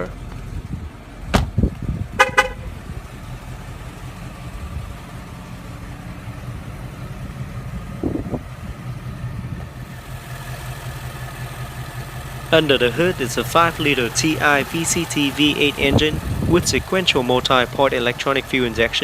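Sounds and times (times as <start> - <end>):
car engine idling: 0.0 - 19.0
thump: 1.3 - 1.7.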